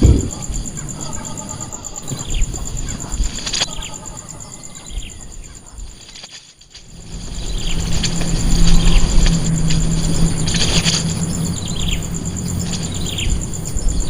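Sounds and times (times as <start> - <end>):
high pulsing buzz: 0.0 - 5.4
small birds chirping: 0.0 - 14.0.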